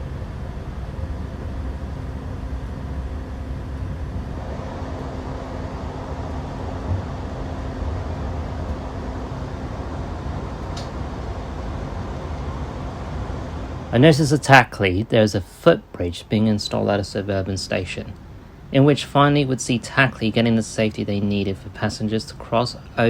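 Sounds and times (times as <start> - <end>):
faint constant hum: 0.0 - 23.0.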